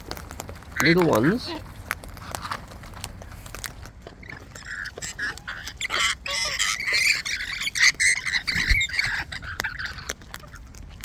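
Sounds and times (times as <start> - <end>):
light ticks and taps: 0.0 - 5.8
parrots squawking: 0.7 - 2.6, 3.3 - 10.7.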